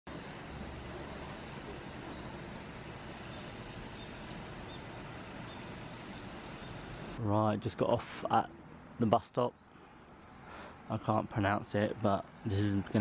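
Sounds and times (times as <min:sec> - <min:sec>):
bird chirps: 0:00.1 - 0:05.9, 0:06.5 - 0:07.0
even hiss: 0:00.1 - 0:07.2
low rumble of traffic: 0:00.1 - 0:13.0.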